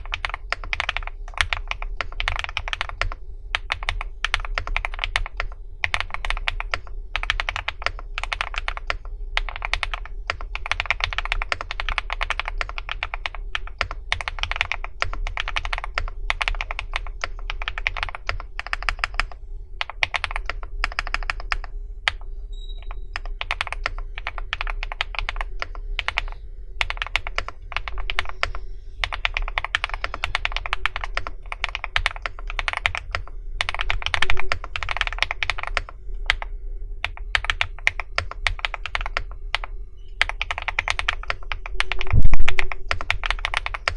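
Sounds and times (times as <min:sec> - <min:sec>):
typing on mechanical keyboard: 0:00.0 - 0:43.9.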